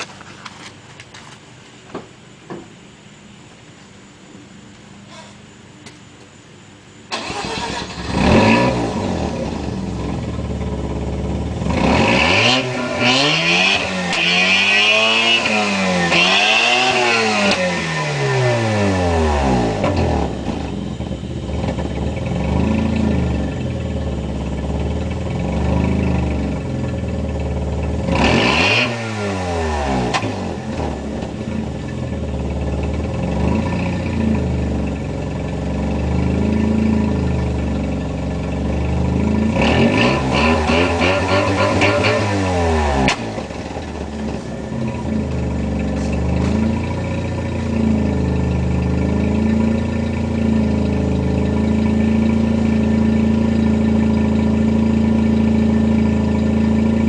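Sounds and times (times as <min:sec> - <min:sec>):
rotary engine revving: 0:07.1 - 0:35.0, 0:35.9 - 0:57.0.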